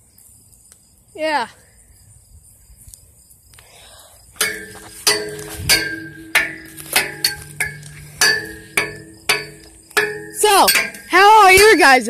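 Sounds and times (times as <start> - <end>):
metallic strikes with ringing: 4.4 - 11.9.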